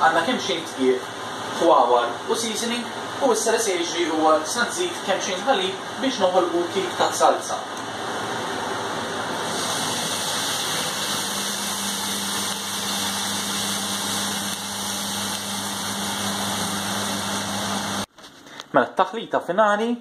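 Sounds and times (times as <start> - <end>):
meat frying in a pan: 9.4 - 18.0.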